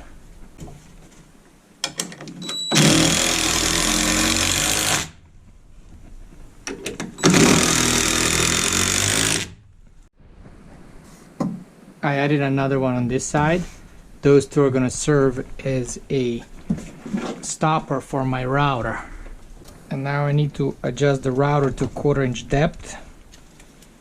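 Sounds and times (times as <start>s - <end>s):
power driver driving screws into wood: 2.5s - 5.2s, 7.2s - 9.6s.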